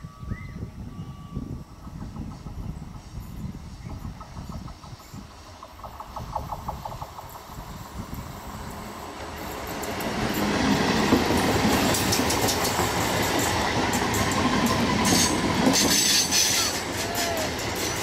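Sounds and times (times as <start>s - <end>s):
train wheels rushing on rails: 1.7s - 18.0s
metallic wheel squeal: 15.0s - 18.0s.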